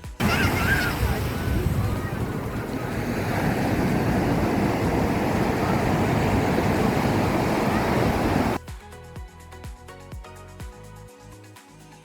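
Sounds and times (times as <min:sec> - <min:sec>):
ocean surf breaking: 0:00.0 - 0:08.6
wind buffeting microphone: 0:00.0 - 0:08.6
music with steady beat: 0:08.6 - 0:12.0.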